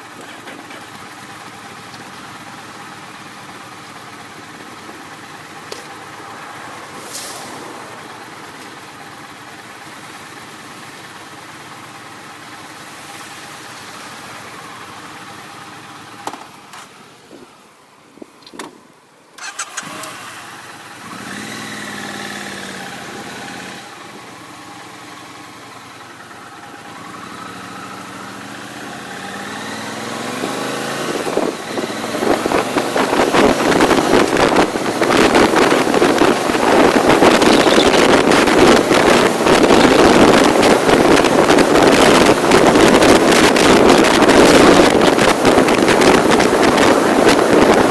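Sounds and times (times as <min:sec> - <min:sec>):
vehicle engine running: 0:00.0 - 0:16.9, 0:19.4 - 0:47.9
wind rushing over microphone: 0:30.4 - 0:47.9.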